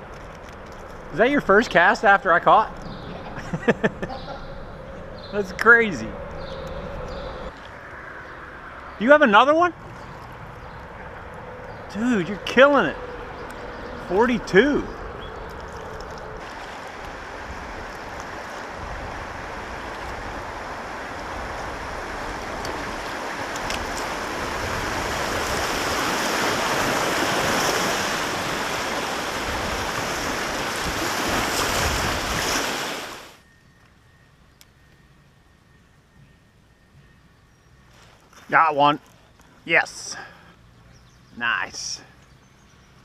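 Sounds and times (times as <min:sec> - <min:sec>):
rushing river water: 0:11.9 - 0:33.4.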